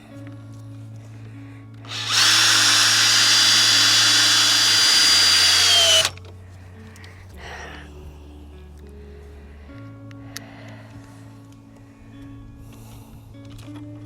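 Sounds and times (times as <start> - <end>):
power drill driving screw into wood: 1.9 - 6.2.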